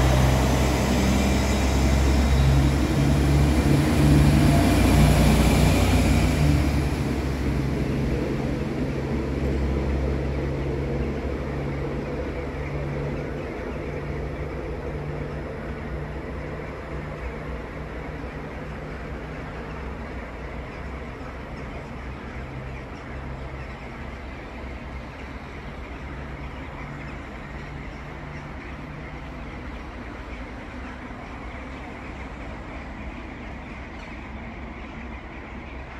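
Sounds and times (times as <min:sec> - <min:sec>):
idling trains humming: 0:00.0 - 0:35.9.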